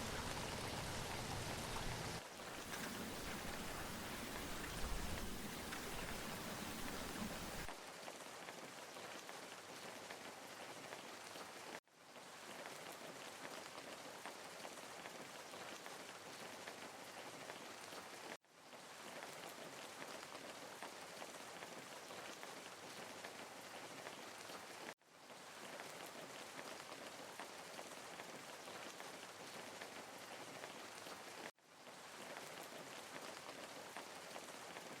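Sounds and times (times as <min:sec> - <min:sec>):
hiss of water: 0:00.0 - 0:07.7.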